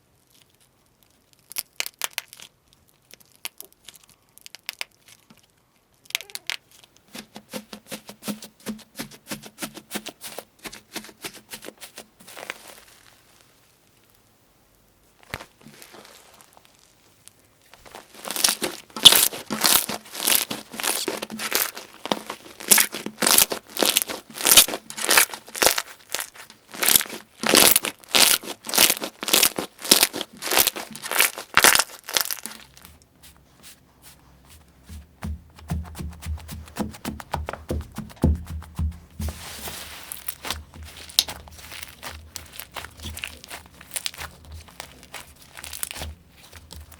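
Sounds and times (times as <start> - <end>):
slime crackling when squeezed: 15.3 - 32.8, 39.6 - 46.9.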